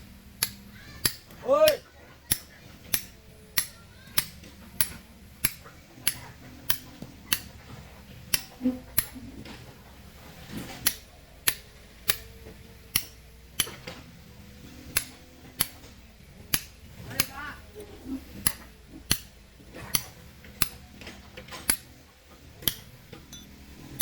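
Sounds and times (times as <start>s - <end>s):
hammer striking steel on stone: 0.4s - 7.6s, 10.8s - 13.8s, 16.5s - 17.4s, 18.4s - 19.3s, 19.9s - 20.8s, 21.7s - 21.9s, 22.6s - 24.0s.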